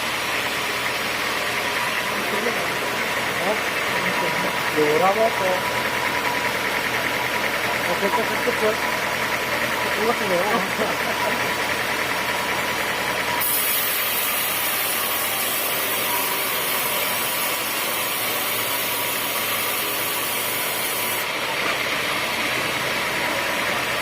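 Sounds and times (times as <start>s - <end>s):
sawmill machinery running: 0.0s - 24.0s
loud high hiss: 13.3s - 21.6s.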